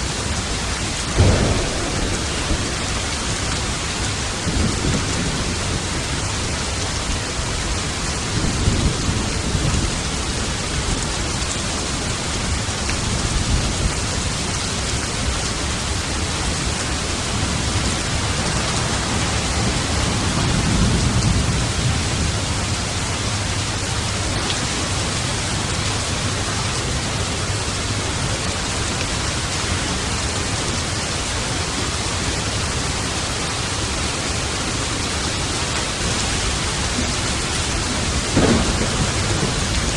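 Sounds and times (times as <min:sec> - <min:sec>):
rolling thunder: 0:00.0 - 0:10.4, 0:15.6 - 0:28.0, 0:33.8 - 0:39.9
heavy rain: 0:00.0 - 0:39.9.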